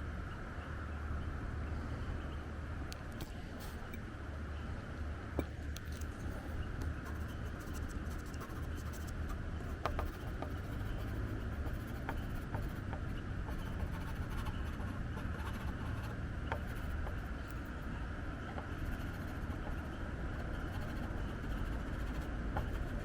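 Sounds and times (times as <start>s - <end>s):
pencil scratching on paper: 6.0s - 17.7s, 18.6s - 23.0s.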